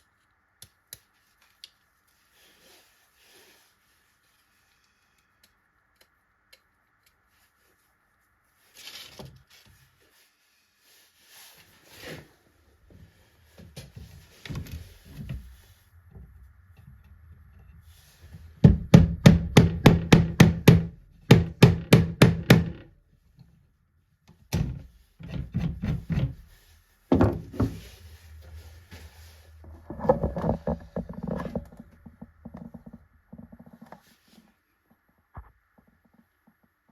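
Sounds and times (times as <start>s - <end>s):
thumps and rubbing on wood: 13.8s - 22.9s, 24.6s - 34.0s
sharp knocks on wood: 18.6s - 22.9s.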